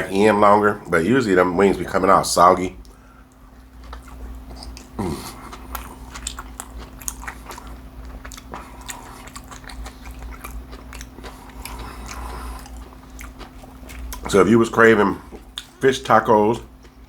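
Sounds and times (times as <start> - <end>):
crunchy chewing mouth sounds: 2.8 - 16.0.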